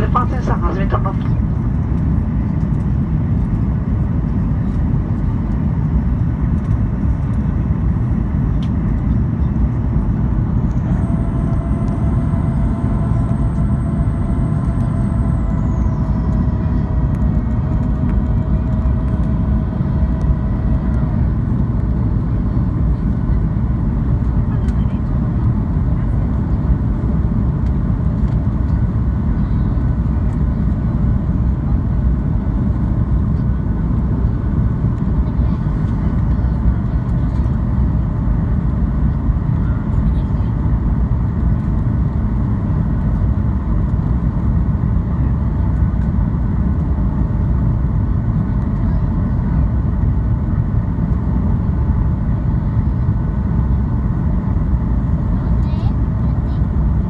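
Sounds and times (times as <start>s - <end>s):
faint steady whine: 0.0s - 1.4s, 9.0s - 23.1s
airplane cabin engine rumble: 0.0s - 57.0s.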